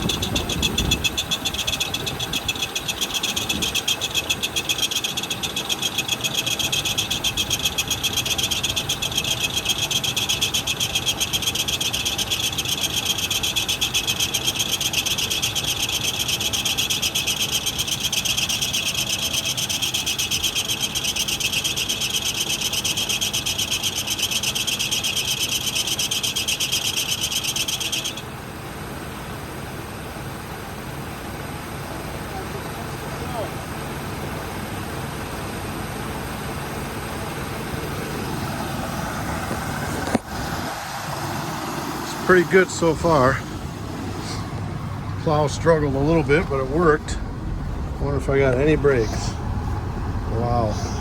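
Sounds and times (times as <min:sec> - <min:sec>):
hydraulic pump motor buzzing: 0:00.0 - 0:28.2.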